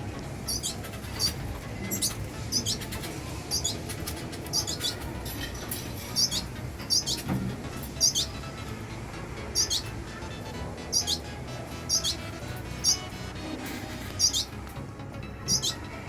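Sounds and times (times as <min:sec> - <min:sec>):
birds squeaky calls: 0:00.3 - 0:16.0.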